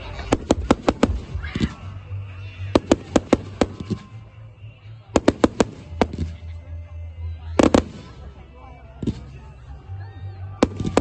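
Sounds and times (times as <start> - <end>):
fireworks cracking bangs: 0.0 - 1.9, 2.6 - 4.2, 5.2 - 6.5, 7.6 - 8.2, 9.0 - 9.5, 10.6 - 11.0.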